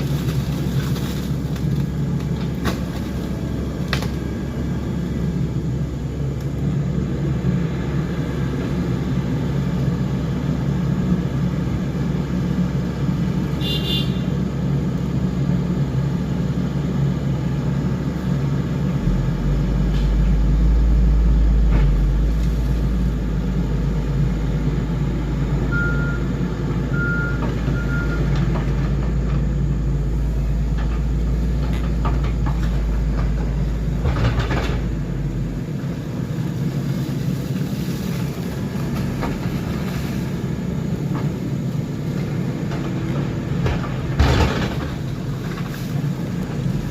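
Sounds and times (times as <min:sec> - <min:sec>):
heavy machinery engine running: 0:00.0 - 0:46.9
backup alarm beeps: 0:25.7 - 0:28.3.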